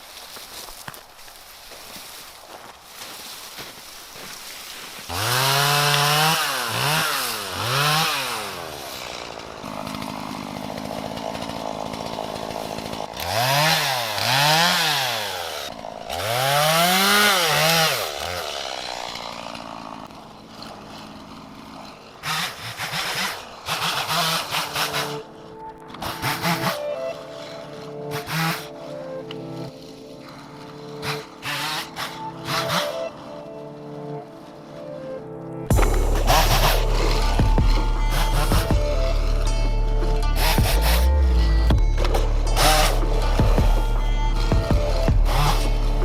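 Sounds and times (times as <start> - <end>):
chainsaw revving and idling: 3.5 - 33.6, 35.7 - 46.0.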